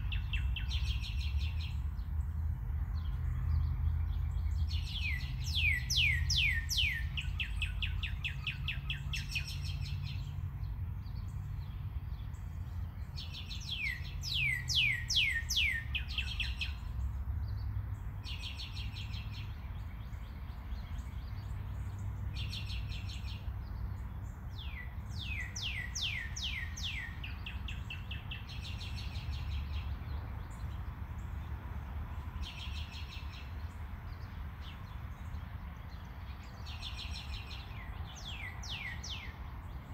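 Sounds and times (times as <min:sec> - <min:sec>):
bird whistles and trills: 0:04.9 - 0:09.8, 0:13.7 - 0:16.8.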